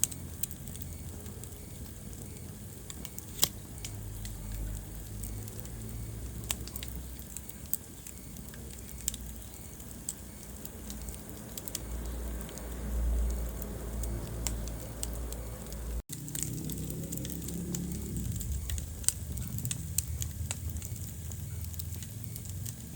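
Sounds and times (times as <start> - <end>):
fire pops and snaps: 0.0 - 22.9
low rumble of flames: 0.0 - 22.9
wood fire crackling: 0.0 - 22.9.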